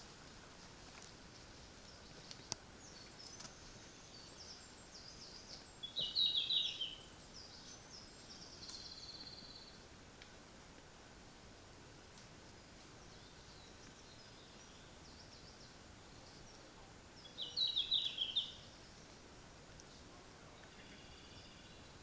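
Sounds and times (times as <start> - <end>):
faint high bird song: 1.7 - 9.9, 12.9 - 19.3, 19.9 - 22.0.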